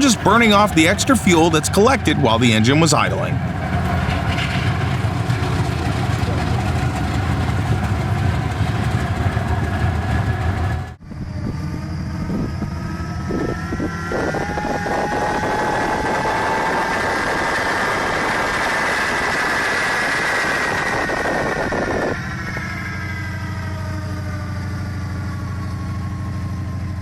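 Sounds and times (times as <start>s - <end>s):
diesel locomotive engine running: 0.0s - 13.2s.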